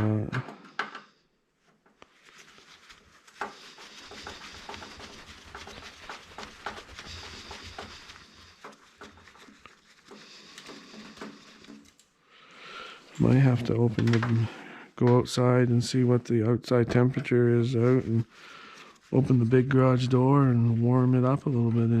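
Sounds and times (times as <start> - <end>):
steady hiss: 2.2 - 13.8
electronics parts clicking and rattling: 3.4 - 12.2.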